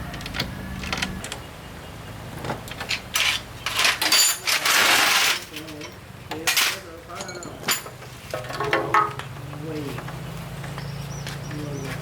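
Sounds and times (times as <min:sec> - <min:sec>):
metal tools clinking: 0:02.8 - 0:09.2.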